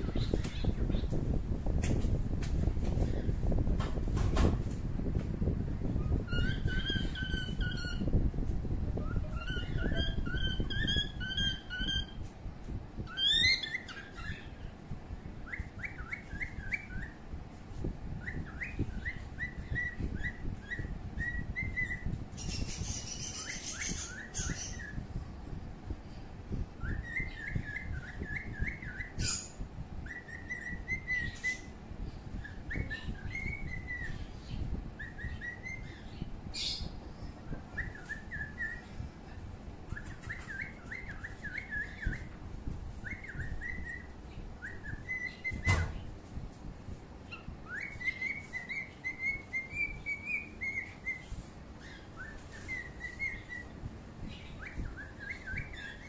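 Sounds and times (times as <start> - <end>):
birds chirping warbling phrases: 5.9 - 12.2, 26.7 - 42.5, 47.2 - 56.0.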